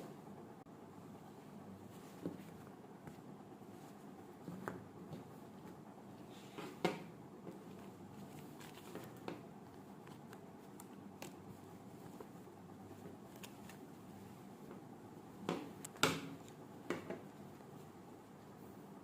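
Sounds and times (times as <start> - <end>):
soft rustling: 1.2 - 6.8, 7.4 - 14.8.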